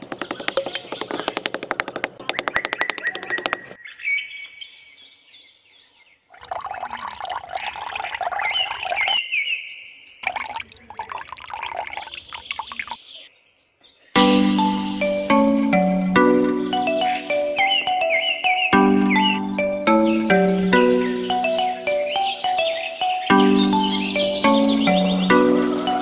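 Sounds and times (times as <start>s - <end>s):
small birds chirping: 0.0s - 14.2s, 16.4s - 26.0s
water poured into bottle: 6.4s - 9.2s, 10.2s - 13.0s.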